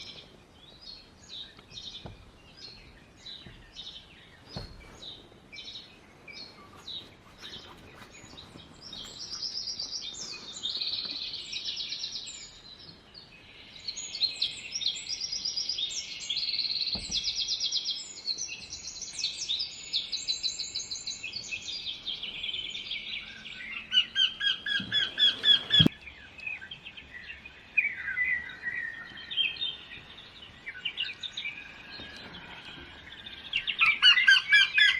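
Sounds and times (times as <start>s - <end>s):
small birds chirping and trilling: 0.0s - 34.9s.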